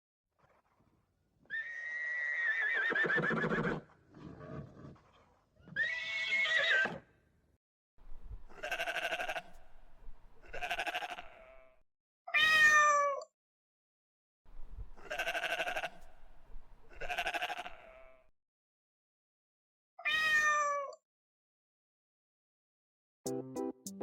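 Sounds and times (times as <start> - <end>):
farm animal calls: 8.5 - 9.8, 10.4 - 11.7, 15.0 - 16.1, 16.9 - 18.2.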